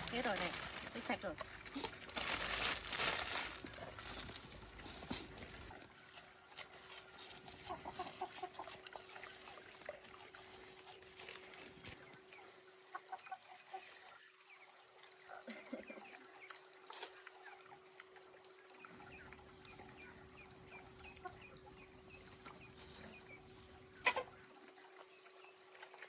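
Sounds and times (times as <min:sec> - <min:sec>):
chickens clucking and chirping: 0:07.5 - 0:09.6, 0:12.1 - 0:14.6, 0:18.8 - 0:25.5.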